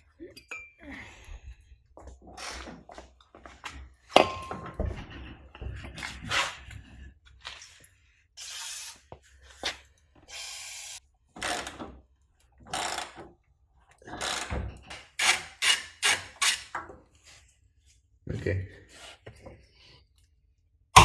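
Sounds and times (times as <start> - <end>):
hand tools scraping and ratcheting: 14.1 - 16.8.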